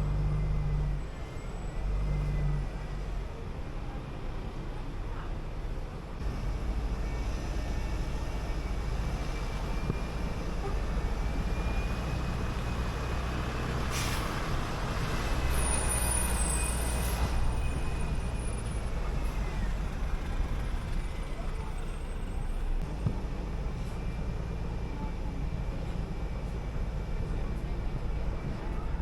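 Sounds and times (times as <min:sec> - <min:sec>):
bus engine running with whine: 0:00.0 - 0:29.0
air brakes hissing: 0:13.7 - 0:14.7, 0:15.4 - 0:18.6.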